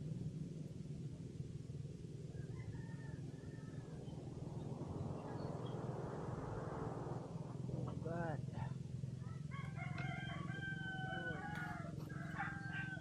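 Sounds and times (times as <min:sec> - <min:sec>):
low mechanical hum: 0:00.0 - 0:13.0
distant rooster crowing: 0:02.3 - 0:04.3, 0:09.2 - 0:13.0.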